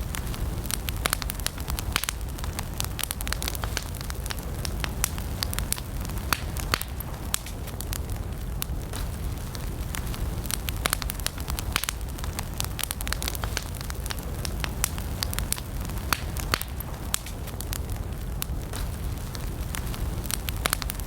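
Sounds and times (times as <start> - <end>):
burning wood crackling and popping: 0.0 - 21.0
low rumble of flames: 0.0 - 21.0.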